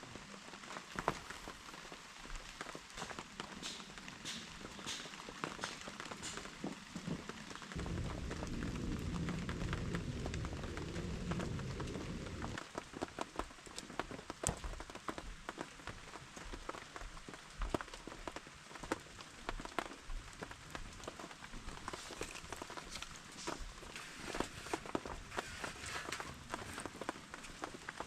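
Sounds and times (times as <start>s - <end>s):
rain falling: 0.0s - 28.0s
low rumble: 7.8s - 12.6s.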